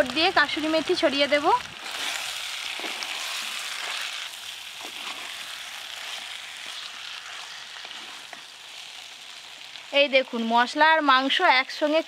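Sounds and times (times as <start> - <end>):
chicken frying with steady sizzle: 0.0 - 12.0
wooden spatula scraping: 1.8 - 9.0.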